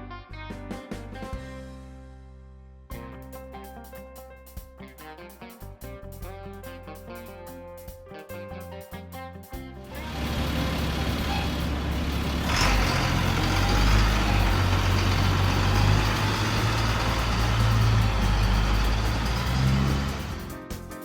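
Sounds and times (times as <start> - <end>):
heavy vehicle engine rumbling: 9.9 - 20.7
air hiss: 10.0 - 20.8.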